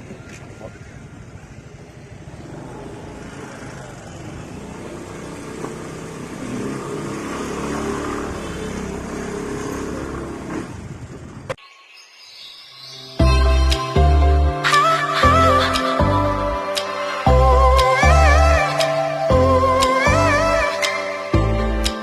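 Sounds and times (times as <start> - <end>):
road and wind noise: 0.0 - 11.6.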